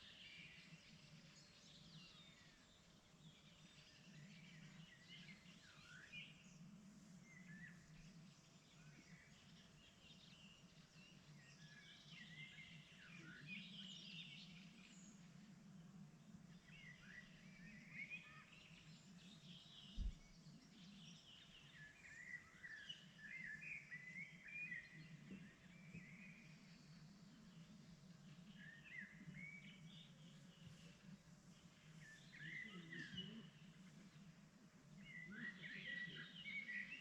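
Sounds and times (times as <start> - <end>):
songbirds chirping and warbling: 0.0 - 37.0
low thump: 20.0 - 20.3.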